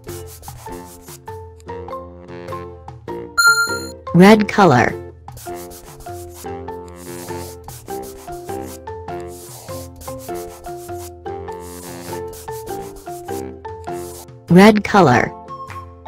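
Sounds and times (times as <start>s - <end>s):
simple melody background music: 0.0s - 9.4s, 10.2s - 16.0s
scratchy coloring strokes: 0.2s - 1.1s, 5.4s - 13.4s, 14.0s - 14.3s.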